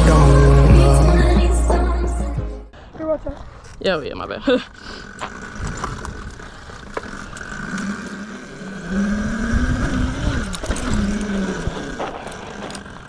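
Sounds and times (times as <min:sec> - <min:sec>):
small engine running: 0:04.7 - 0:13.0.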